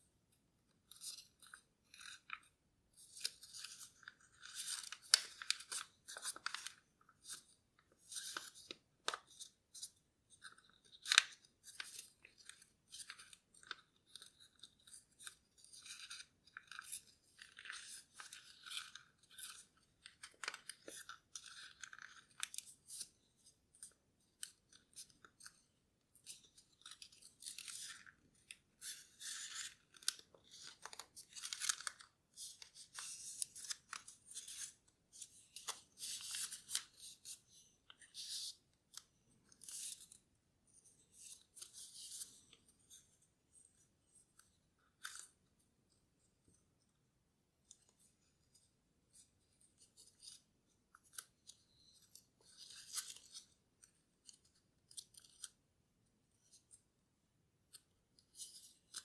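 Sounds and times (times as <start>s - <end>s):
paper rustling and crinkling: 0.9s - 9.8s, 10.4s - 40.2s
paper crackles: 3.1s - 7.4s, 26.2s - 38.5s.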